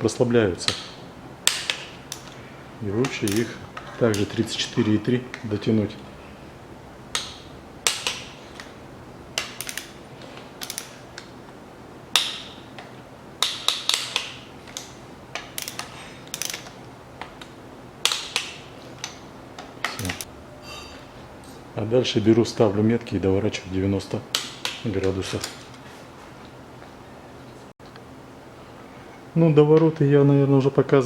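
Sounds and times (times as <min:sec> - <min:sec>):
torque wrench ratchet clicking: 0:03.0 - 0:04.3, 0:09.4 - 0:10.0, 0:10.6 - 0:11.0, 0:13.4 - 0:16.8.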